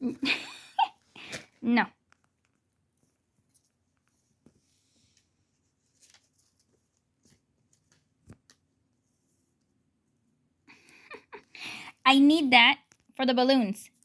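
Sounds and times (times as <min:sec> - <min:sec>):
soft paper rustles: 0:01.0 - 0:10.5.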